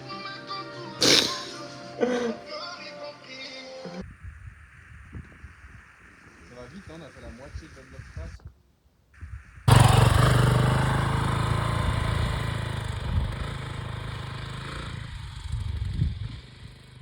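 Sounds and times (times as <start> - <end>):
motorcycle engine running: 9.2 - 17.0.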